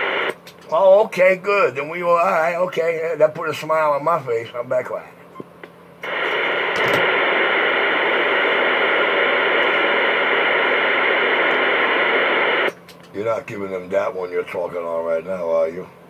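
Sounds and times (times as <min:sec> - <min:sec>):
radio static hiss: 0:00.0 - 0:00.4, 0:06.0 - 0:12.8.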